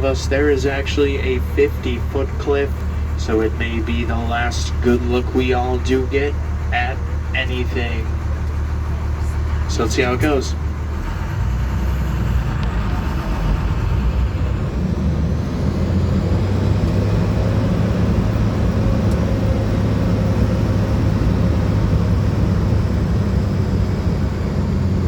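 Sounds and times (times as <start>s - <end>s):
vehicle engine droning: 0.0s - 25.0s.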